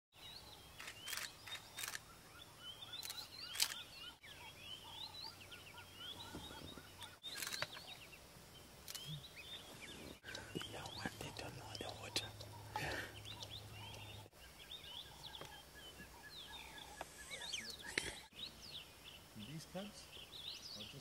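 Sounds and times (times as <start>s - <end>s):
wild birds chirping: 0.1s - 21.0s
sharp clicks: 0.8s - 2.0s, 3.0s - 3.9s, 7.3s - 7.9s.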